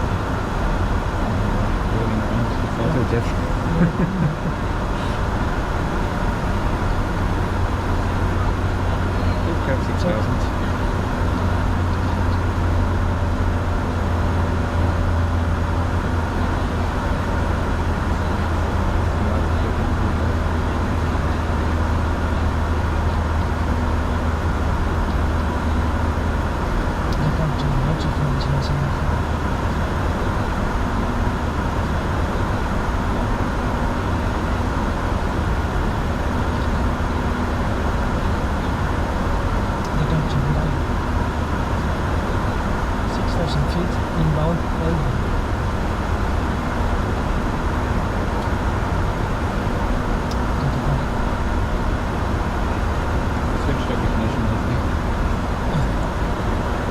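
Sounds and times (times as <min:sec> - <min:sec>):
jet engine hum: 0:00.0 - 0:56.9
strong low drone: 0:00.0 - 0:56.9
cockpit airflow: 0:01.0 - 0:13.2.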